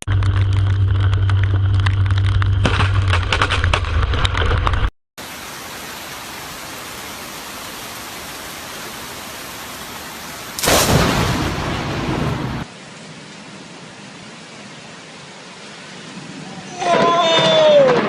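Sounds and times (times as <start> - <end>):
crackling patter: 0.0 - 4.9
steady hiss of rain: 5.2 - 18.0
low thunder rumble: 10.6 - 12.7.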